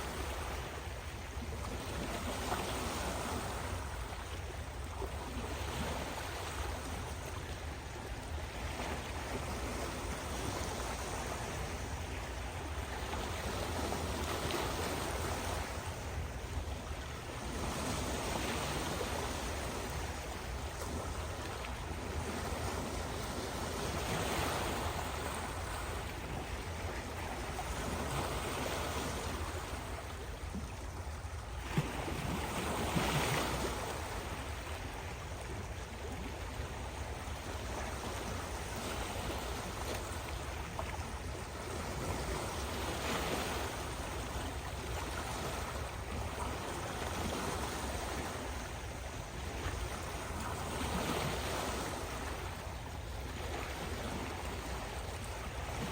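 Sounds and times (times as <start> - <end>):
ocean waves breaking: 0.0 - 55.9.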